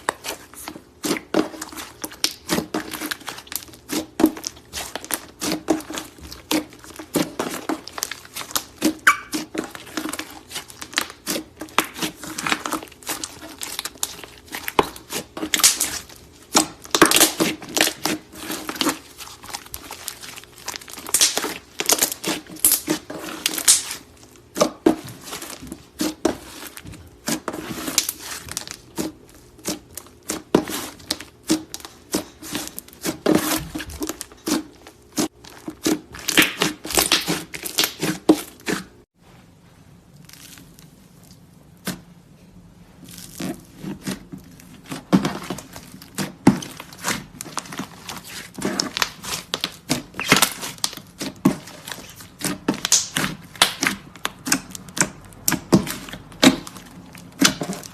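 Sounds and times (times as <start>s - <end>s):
slime squished by hand crackling: 44.9s - 57.9s.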